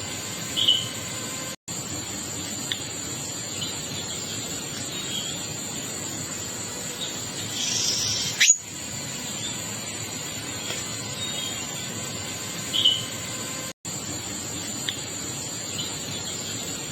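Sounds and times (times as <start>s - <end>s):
steady high-pitched tone: 0.0s - 16.9s
birds chirping: 0.4s - 1.2s, 6.9s - 9.7s, 12.6s - 13.3s.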